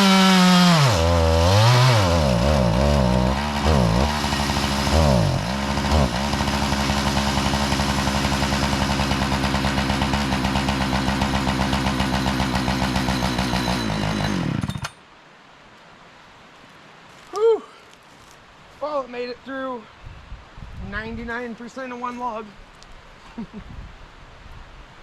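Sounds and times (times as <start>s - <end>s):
chainsaw cutting through log: 0.0s - 15.0s.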